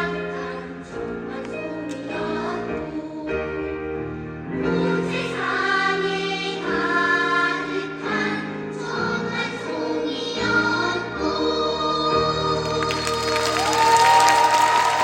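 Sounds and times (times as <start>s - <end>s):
children's choir singing: 4.6s - 15.0s.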